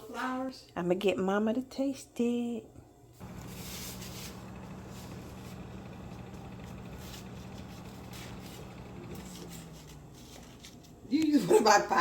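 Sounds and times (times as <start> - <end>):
low hum with hiss: 0.0 - 12.0.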